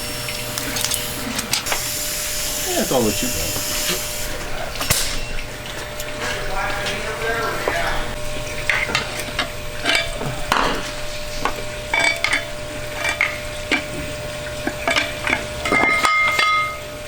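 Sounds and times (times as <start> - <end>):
workshop hum and hiss: 0.0 - 17.0
struck metal ringing: 4.4 - 5.7
metal tools clinking: 8.5 - 14.0.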